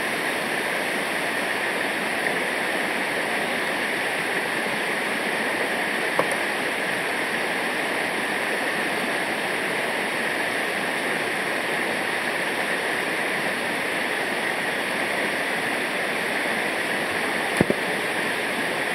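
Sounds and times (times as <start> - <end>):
river water rushing over rapids: 0.0 - 18.9.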